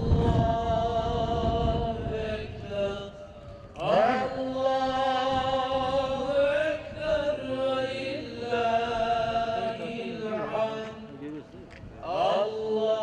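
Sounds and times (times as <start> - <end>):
person chanting: 3.8 - 13.0.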